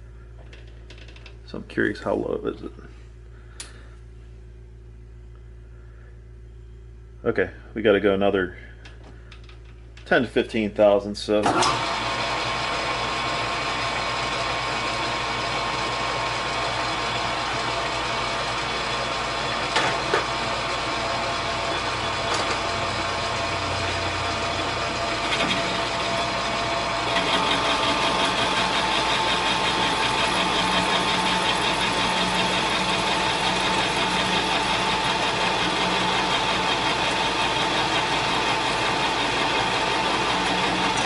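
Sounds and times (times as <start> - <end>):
metal lathe running: 11.5 - 41.0
lathe tool cutting steel: 11.6 - 41.0.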